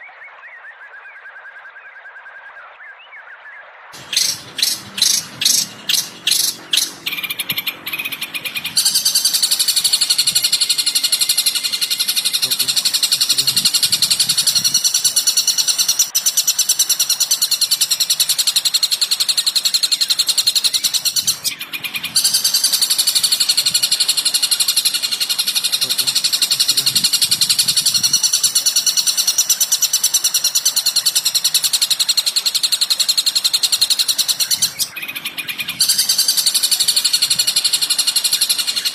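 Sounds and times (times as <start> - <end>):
bird rattling notes: 4.0 - 35.0
bird high-pitched chattering: 4.0 - 38.9.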